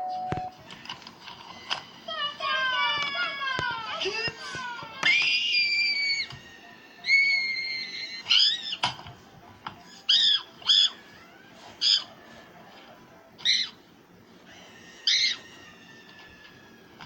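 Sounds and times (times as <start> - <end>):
high-pitched squeaky calls: 7.0 - 8.8, 9.9 - 11.1, 13.4 - 13.8, 14.5 - 15.9.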